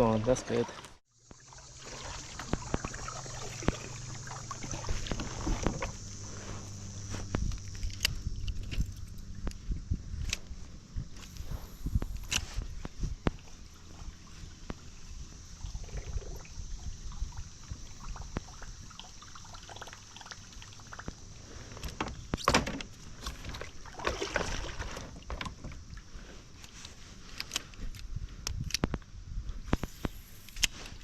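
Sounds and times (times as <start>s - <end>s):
water splashing: 0.0s - 6.7s, 23.2s - 25.4s.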